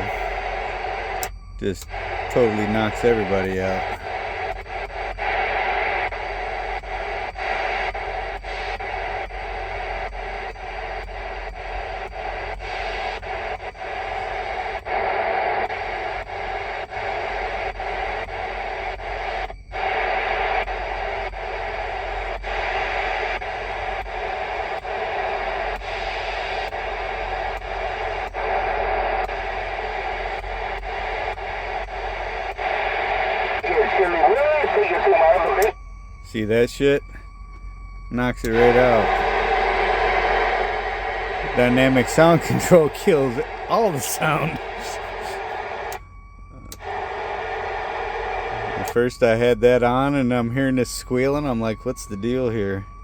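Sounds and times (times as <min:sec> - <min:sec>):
radio static hiss: 0:00.0 - 0:37.2, 0:38.1 - 0:46.0, 0:46.6 - 0:52.8
faint regular ticking: 0:00.0 - 0:39.2.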